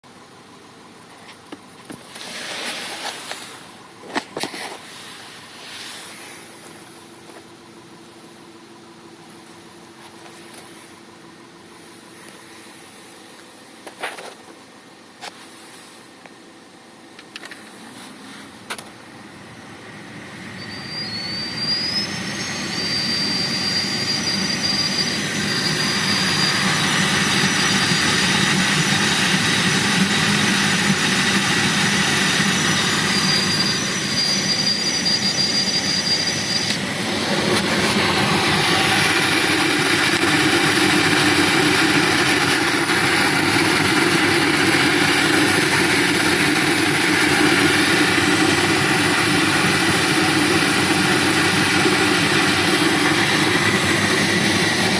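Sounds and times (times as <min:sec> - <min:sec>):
heater blower fan rushing air: 0:01.7 - 0:08.5, 0:17.2 - 0:54.9
thin high whistle: 0:19.5 - 0:54.9.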